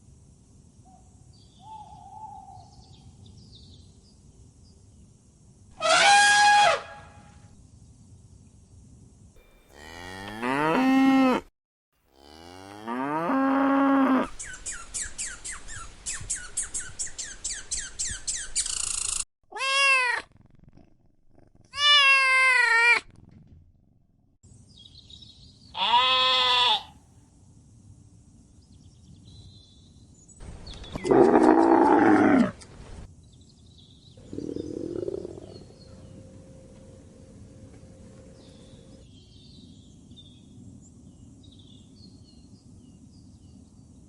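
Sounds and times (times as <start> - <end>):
cow mooing: 9.6 - 11.5, 12.2 - 14.3
short high animal calls: 25.8 - 26.9.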